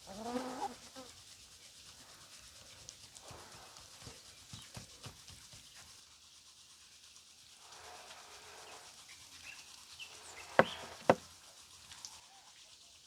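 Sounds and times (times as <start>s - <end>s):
sharp knocks: 10.6s - 11.2s.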